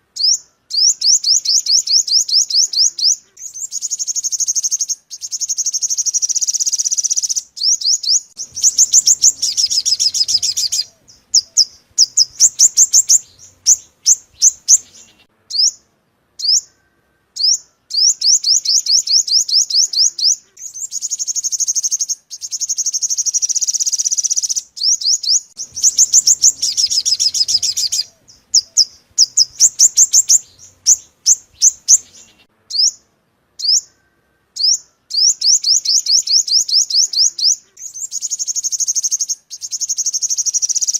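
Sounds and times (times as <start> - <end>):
sunbird sharp chirps: 0.2 - 40.9
sunbird trilled chirps: 0.2 - 40.9.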